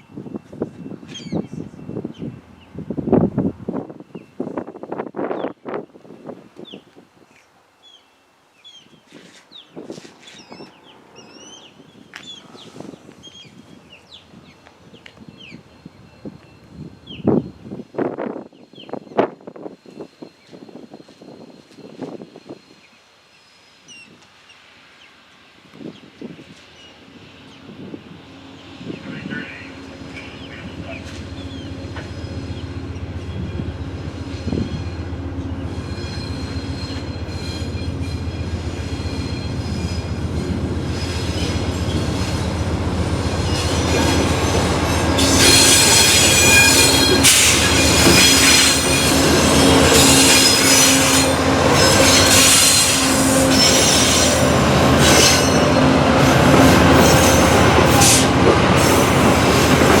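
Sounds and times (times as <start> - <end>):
steel wheels squealing: 31.4 - 32.6, 35.7 - 42.5, 43.4 - 59.9.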